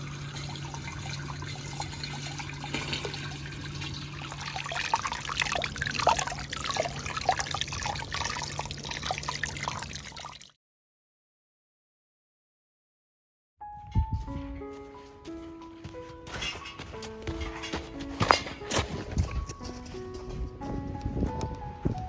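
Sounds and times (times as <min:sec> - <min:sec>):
running water trickling: 0:00.0 - 0:10.6.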